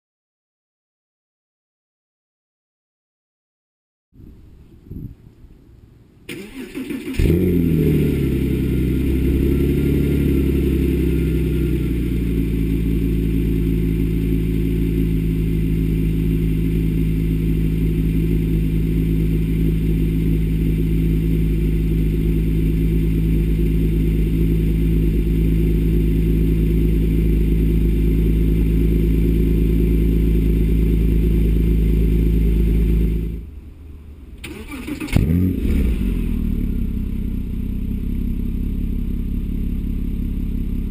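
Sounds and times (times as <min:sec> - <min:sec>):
car engine revving and idling: 0:06.4 - 0:40.9.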